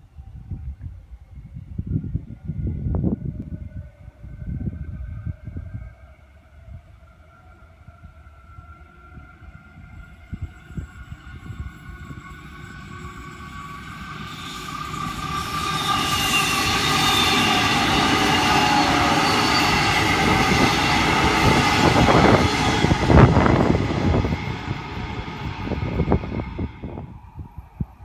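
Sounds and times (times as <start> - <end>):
electric train whine: 0.1 - 28.0
wheels rushing on rail: 7.8 - 28.0.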